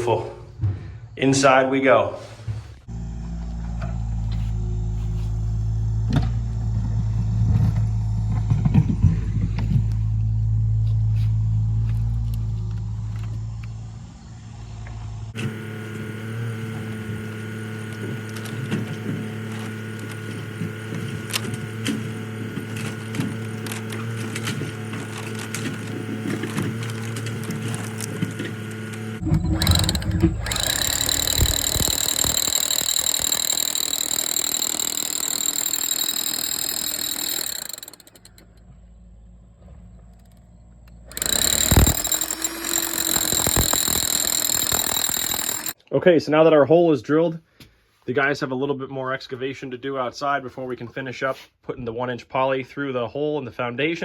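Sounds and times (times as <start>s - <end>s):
steady mechanical hum: 0.0s - 45.8s
engine running: 2.8s - 45.8s
electric drill grinding concrete: 15.3s - 38.6s, 40.2s - 45.8s.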